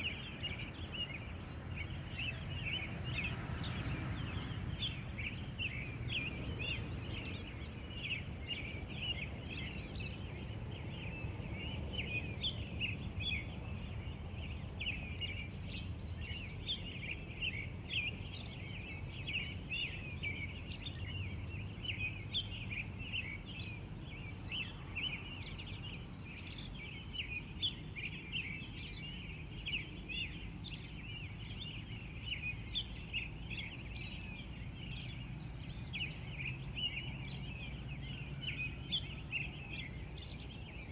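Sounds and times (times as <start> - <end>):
birds chirping: 0.0 - 40.9
insect trill: 0.0 - 40.9.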